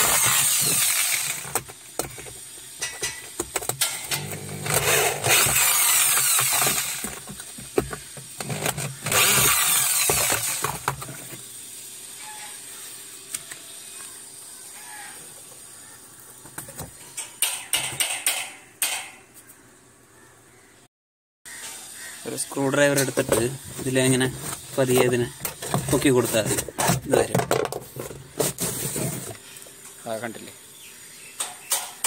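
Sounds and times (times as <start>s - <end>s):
power screwdriver running: 0.0s - 2.1s, 4.0s - 11.0s.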